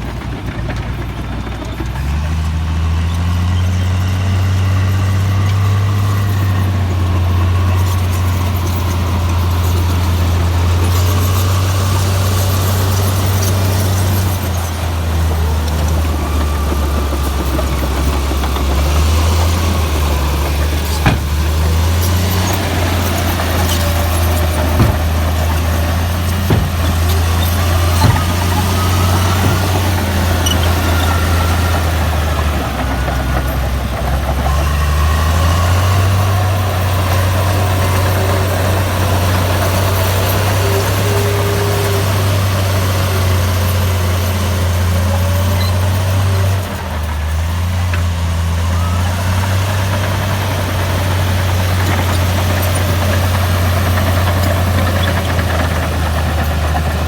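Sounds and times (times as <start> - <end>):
bulldozer diesel engine running: 0.0 - 57.0
sharp metal clanks: 20.6 - 31.4.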